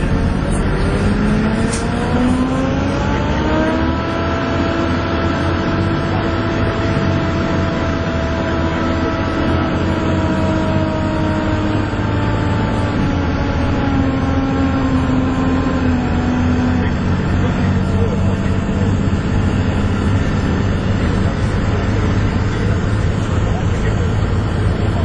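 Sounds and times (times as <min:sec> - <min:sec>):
bus engine high whine: 0:00.0 - 0:25.0
low engine drone: 0:00.0 - 0:25.0.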